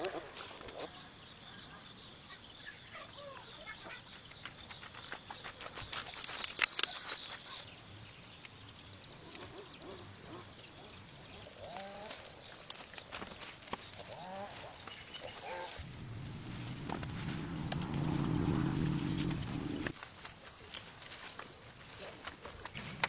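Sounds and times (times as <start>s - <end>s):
sharp clicks and crackles: 15.8s - 19.9s
steady high hiss: 15.8s - 19.9s.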